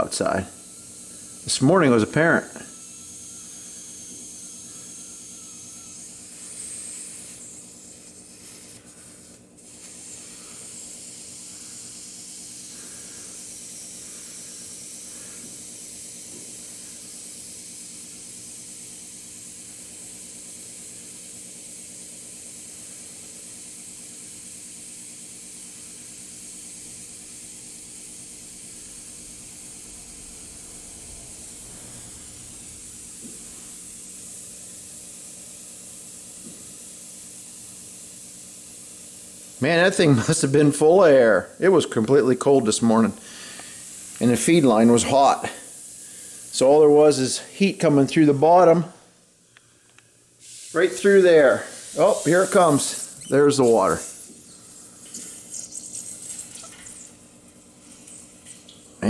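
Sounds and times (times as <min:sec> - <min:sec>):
air hissing from valve: 0:00.0 - 0:59.0
steady low hum: 0:25.2 - 0:36.7.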